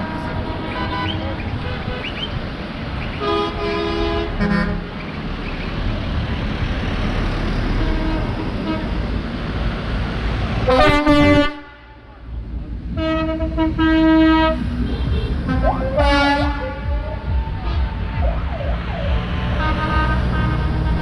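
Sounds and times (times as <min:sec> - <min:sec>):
vehicle horn: 0:00.0 - 0:02.1, 0:03.2 - 0:04.9, 0:07.8 - 0:08.9, 0:10.7 - 0:12.0, 0:13.0 - 0:14.7, 0:15.5 - 0:18.2, 0:19.5 - 0:21.0
road traffic rumbling: 0:00.0 - 0:21.0.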